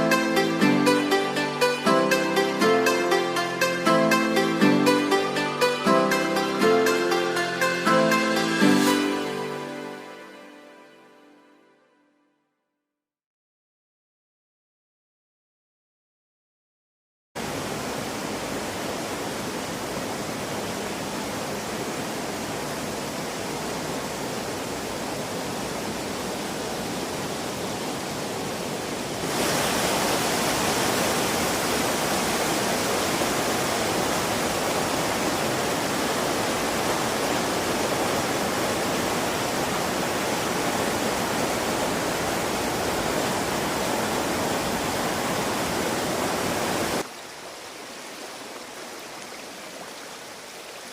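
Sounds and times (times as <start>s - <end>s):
river water rushing: 17.4s - 50.9s.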